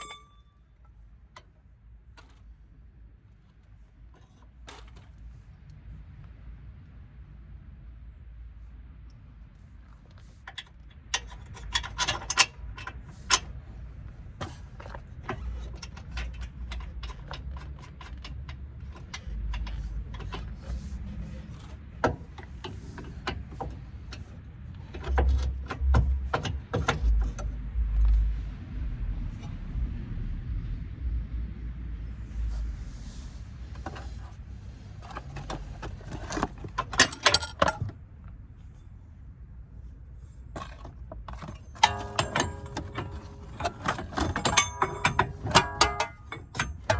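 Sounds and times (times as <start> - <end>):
metal hand tools clinking: 41.8 - 46.9.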